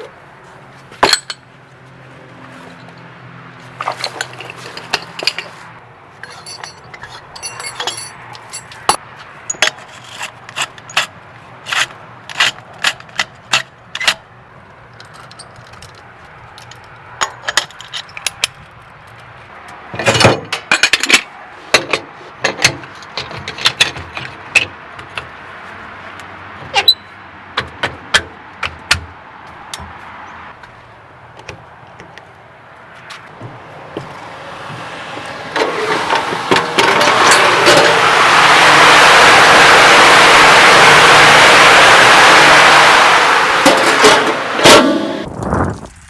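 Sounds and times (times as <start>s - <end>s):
metal gear clinking: 6.2s - 9.0s.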